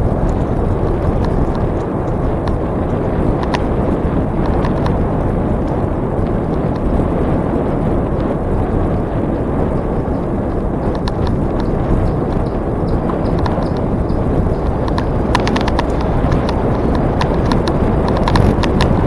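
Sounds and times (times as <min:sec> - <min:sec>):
wind rushing on microphone: 0:00.0 - 0:19.0
light clicks and rattles: 0:09.7 - 0:19.0.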